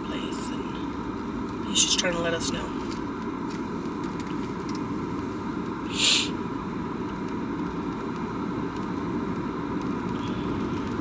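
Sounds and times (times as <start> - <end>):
car road and engine rumble: 0.0 - 11.0
short hiss: 5.9 - 6.4.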